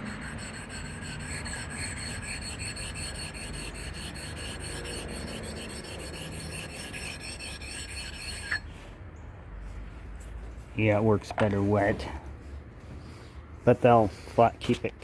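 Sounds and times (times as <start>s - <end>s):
sharpening stone scraping: 0.0s - 8.7s.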